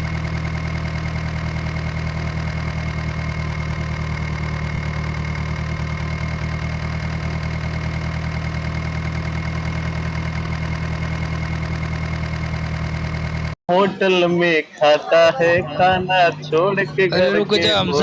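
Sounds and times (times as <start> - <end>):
tractor engine idling: 0.0 - 14.2.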